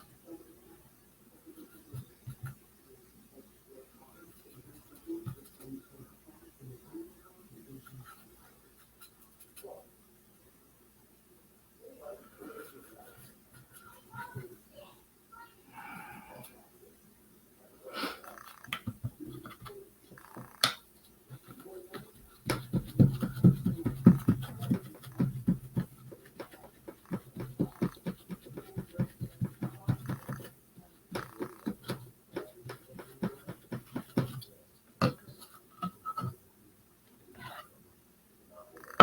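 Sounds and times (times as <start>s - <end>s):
paintbrush scratchy strokes on wood: 12.1s - 14.4s, 21.3s - 30.5s, 31.2s - 34.5s.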